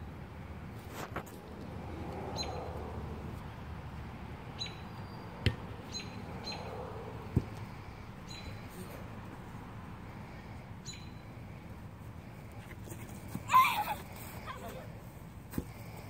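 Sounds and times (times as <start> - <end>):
bird chirping: 4.6 - 6.7, 8.2 - 8.6, 10.8 - 11.3.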